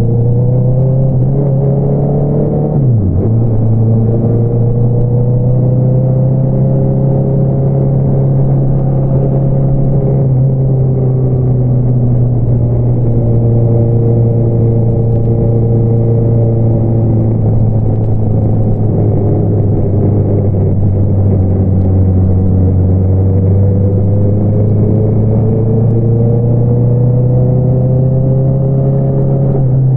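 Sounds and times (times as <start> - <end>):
motorcycle engine running steadily: 0.0 - 28.4.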